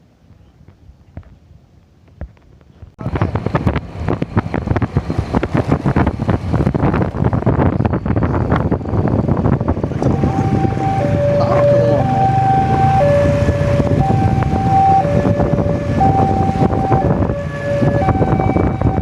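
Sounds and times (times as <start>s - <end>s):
wind rushing on microphone: 0.3s - 19.0s
train rattling at speed: 3.0s - 10.8s.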